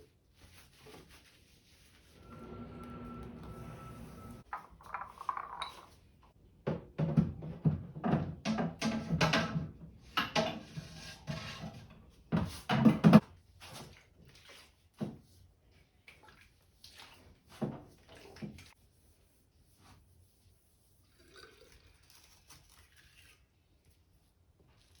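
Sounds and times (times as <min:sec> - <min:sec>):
small hard objects clattering: 0:04.4 - 0:05.9.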